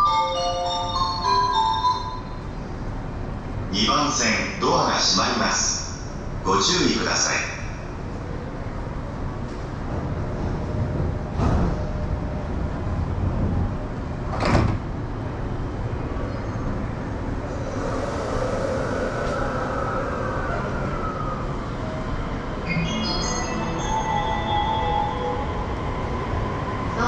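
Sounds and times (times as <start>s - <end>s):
train rumbling at platform: 0.0s - 27.0s
train doors sliding shut: 9.4s - 12.3s, 13.2s - 15.1s.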